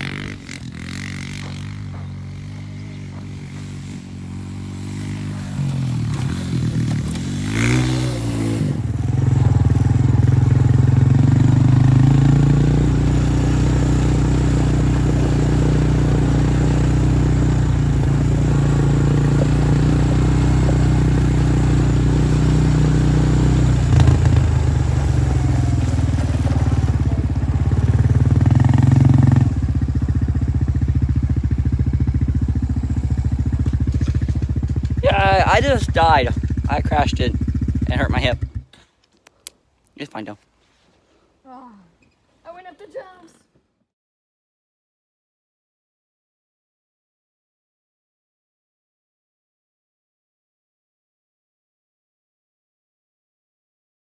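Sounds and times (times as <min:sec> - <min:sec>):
motorbike engine revving: 0:00.0 - 0:38.7.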